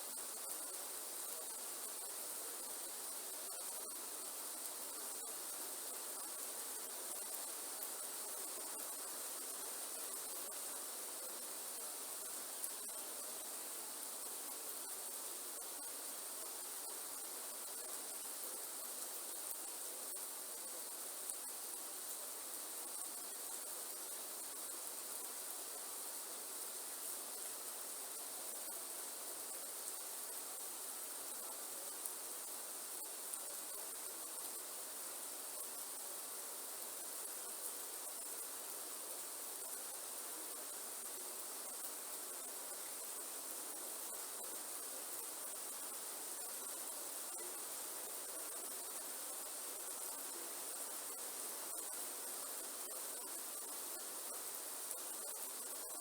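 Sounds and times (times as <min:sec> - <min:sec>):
high-pitched insect chorus: 0:00.0 - 0:56.0
steady rain falling: 0:00.0 - 0:56.0.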